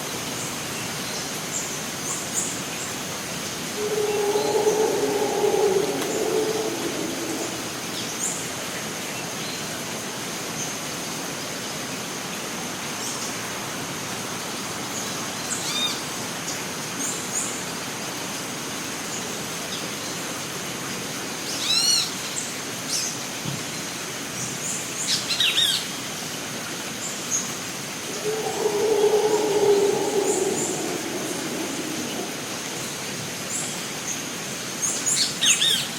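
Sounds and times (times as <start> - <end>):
continuous high tone: 3.7 - 8.0, 28.0 - 33.1
steady hiss: 3.7 - 8.2, 28.0 - 33.6
bird calls: 3.8 - 7.9, 28.0 - 32.9.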